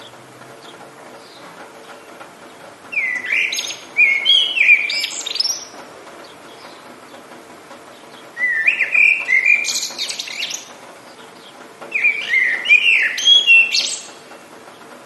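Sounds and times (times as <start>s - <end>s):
faint rain hiss: 0.0s - 15.0s
songbird whistling song: 2.9s - 6.9s, 8.0s - 10.8s, 11.4s - 14.3s.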